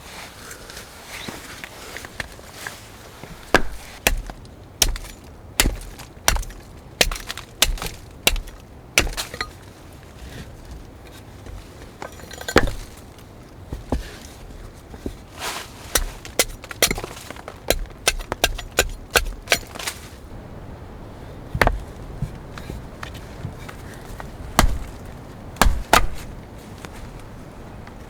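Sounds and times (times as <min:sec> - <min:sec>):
axe chopping wood: 0:03.5 - 0:09.5, 0:12.5 - 0:13.0, 0:15.9 - 0:19.9, 0:21.6 - 0:22.4, 0:24.4 - 0:26.4.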